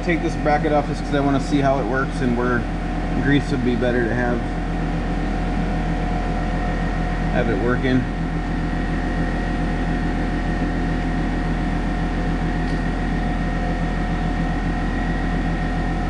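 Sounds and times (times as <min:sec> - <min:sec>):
machine hum with whine: 0:00.0 - 0:16.0.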